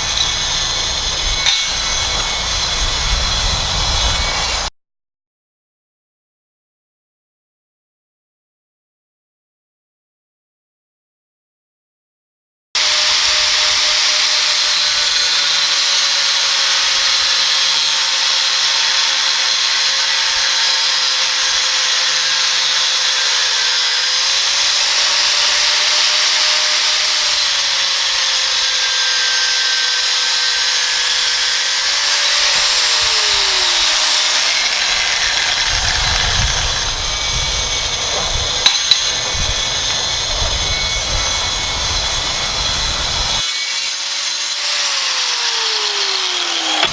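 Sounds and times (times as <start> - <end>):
angle grinder cutting: 0.0 - 4.7, 12.8 - 46.9
low rumble: 32.6 - 43.4.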